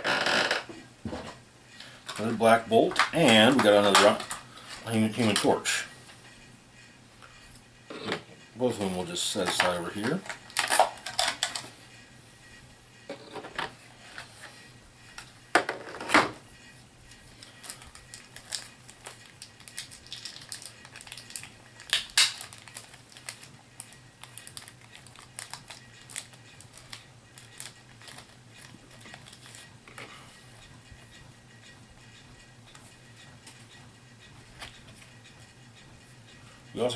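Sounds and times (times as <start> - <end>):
packaging crinkling: 17.4 - 29.7
plastic pieces clicking and knocking: 17.6 - 23.5.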